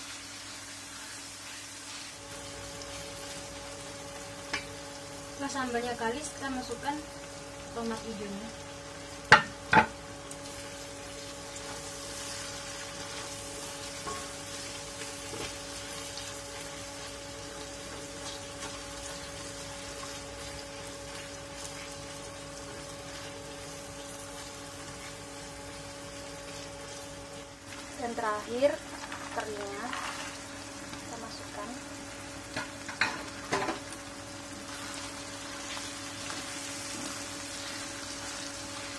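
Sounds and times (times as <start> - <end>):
food sizzling in a wok: 0.0 - 38.9
utensil knocking on pan: 9.3 - 9.9.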